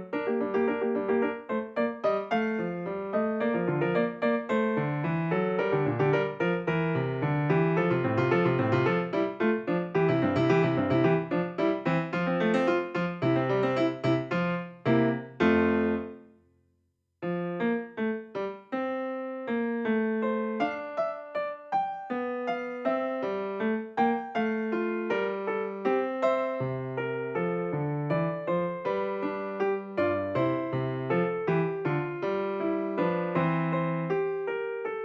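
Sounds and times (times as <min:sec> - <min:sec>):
piano music: 0:00.0 - 0:16.4, 0:17.2 - 0:35.0.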